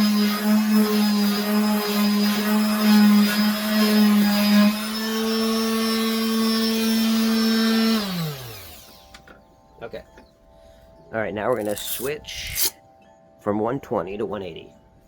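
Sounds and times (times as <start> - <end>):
electric sander on wood: 0.0 - 9.2.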